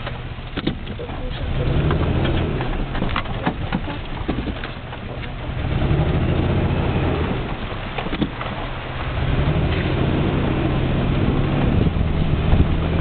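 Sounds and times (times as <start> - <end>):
knocks and rattles: 0.0 - 6.5, 7.5 - 8.8
vehicle engine humming: 0.0 - 13.0.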